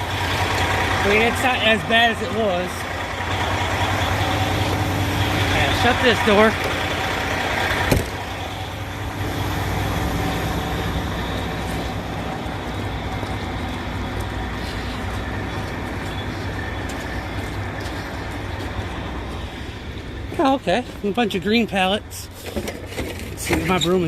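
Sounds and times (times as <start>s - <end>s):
truck diesel engine idling: 0.0s - 24.0s
trailer door slamming: 7.8s - 8.2s.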